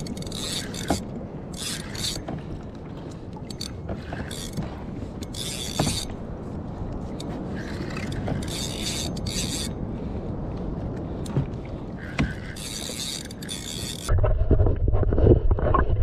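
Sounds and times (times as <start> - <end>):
fishing reel cranking: 0.0 - 2.3, 3.5 - 4.6, 5.2 - 6.2, 7.2 - 9.8, 12.0 - 14.1
water and wind wash: 0.0 - 16.0.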